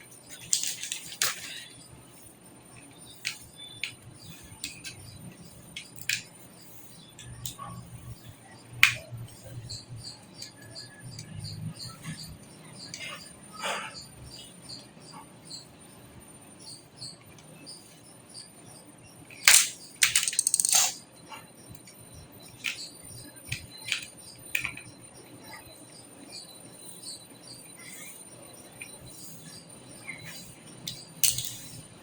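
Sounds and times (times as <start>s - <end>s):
metal computer hardware clicking: 19.5s - 21.0s.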